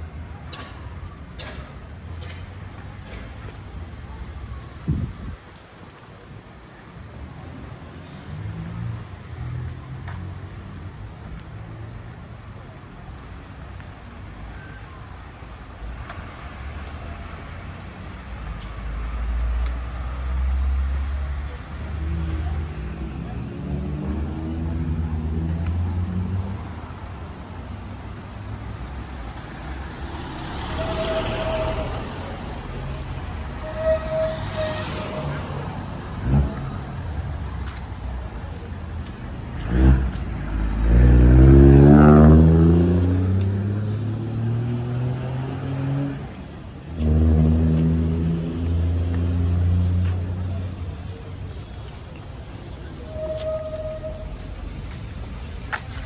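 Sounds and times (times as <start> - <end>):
city street traffic: 0.0 - 56.0
vehicle accelerating close by: 20.2 - 26.6, 39.2 - 51.0.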